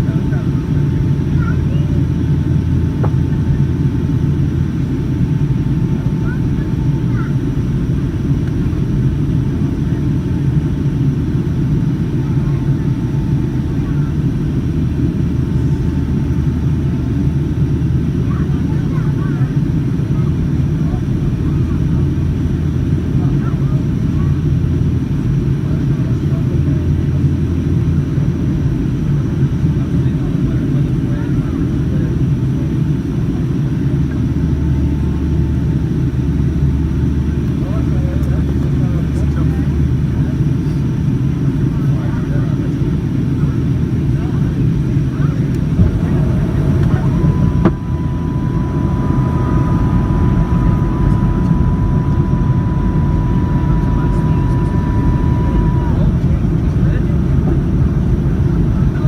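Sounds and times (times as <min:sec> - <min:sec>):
airliner cabin engine rumble: 0:00.0 - 0:59.0
thin steady whine: 0:32.7 - 0:59.0.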